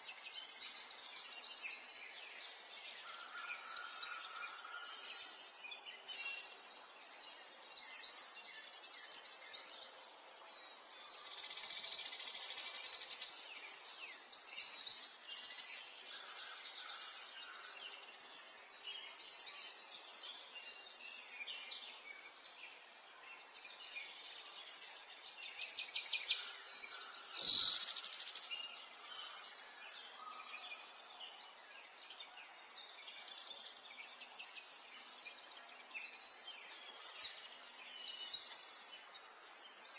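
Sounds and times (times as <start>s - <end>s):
songbirds trilling: 23.4s - 31.6s.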